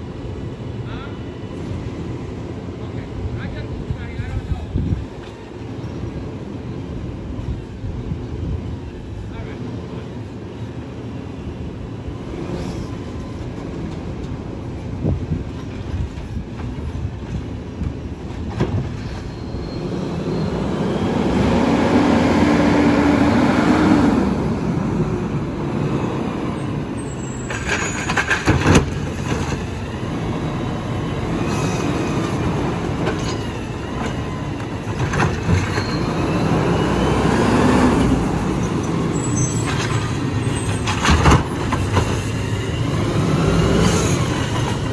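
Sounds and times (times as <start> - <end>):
garbage truck engine and hydraulics: 4.8 - 44.9
metal clanks and squeals: 18.3 - 21.0, 26.1 - 37.3, 38.4 - 44.9.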